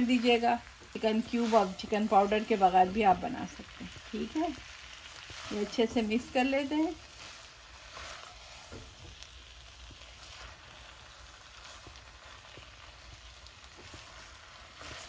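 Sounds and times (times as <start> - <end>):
food sizzling in a wok: 0.0 - 15.0
spatula scraping a wok: 0.0 - 15.0.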